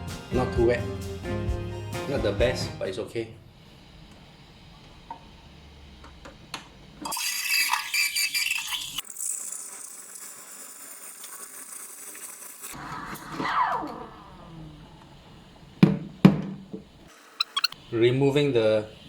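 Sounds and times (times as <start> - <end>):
espresso machine hissing: 6.9 - 12.8.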